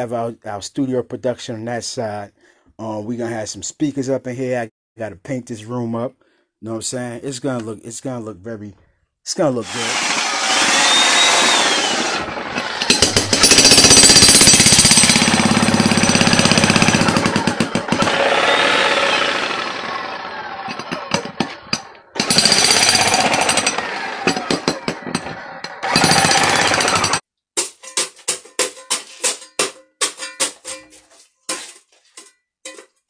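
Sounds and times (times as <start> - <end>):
demolition hammer chiselling concrete: 9.6 - 27.2.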